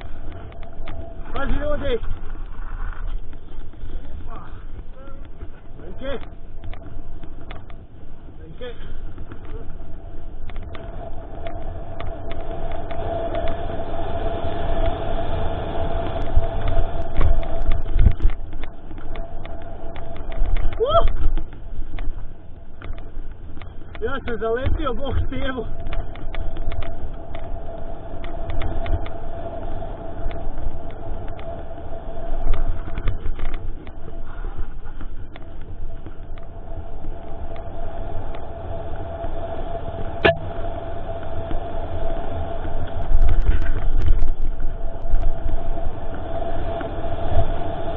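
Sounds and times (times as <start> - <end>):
bike clicks and rattles: 0.0 - 13.8, 16.0 - 38.5
faint steady hum: 0.0 - 47.9
steady squealing tone: 0.0 - 47.9
wind rumble on microphone: 0.0 - 47.9.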